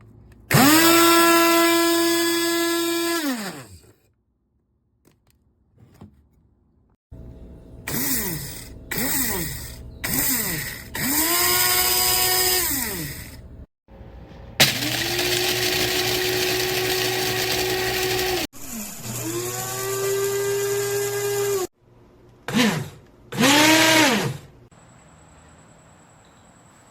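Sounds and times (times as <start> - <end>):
coffee grinder motor whirring: 0.5 - 3.8, 7.9 - 13.4, 14.6 - 21.7.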